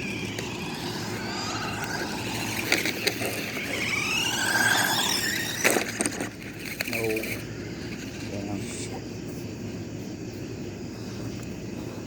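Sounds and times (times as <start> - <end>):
toy car electric motor whining: 0.0 - 8.8.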